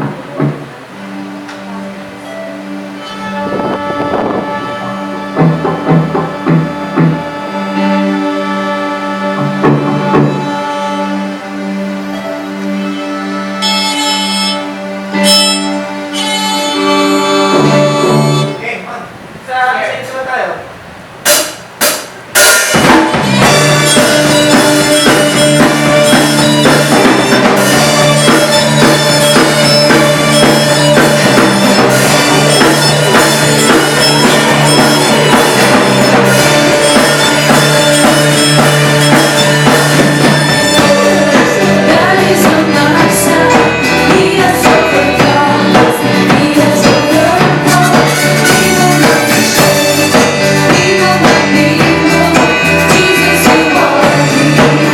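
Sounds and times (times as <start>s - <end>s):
live band playing: 0.0s - 54.9s
sharp drum hits: 3.2s - 7.4s, 21.2s - 54.9s.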